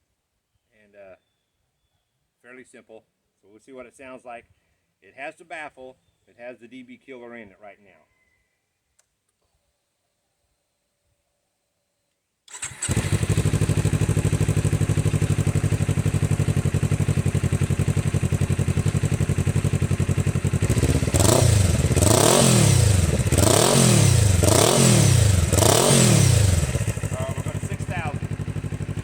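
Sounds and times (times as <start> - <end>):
motorcycle engine idling: 12.6 - 29.0
throttle blips revving engine: 20.5 - 28.9.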